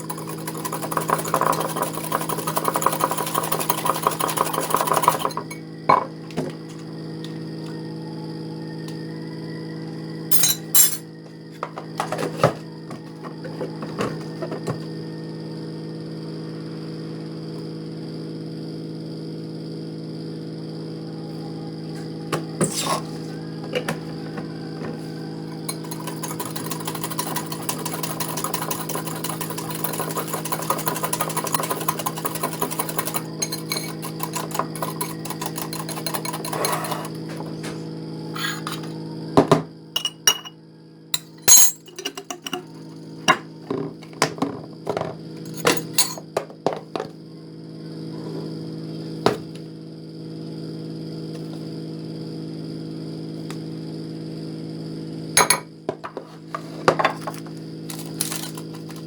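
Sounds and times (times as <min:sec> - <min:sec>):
kitchen appliance humming: 0:00.0 - 0:18.8, 0:19.6 - 0:49.8, 0:54.8 - 0:59.0
dishes and utensils clinking: 0:10.3 - 0:11.1, 0:40.0 - 0:40.6, 0:41.2 - 0:42.7
quick scraping and clinking: 0:25.7 - 0:37.4, 0:57.9 - 0:59.0.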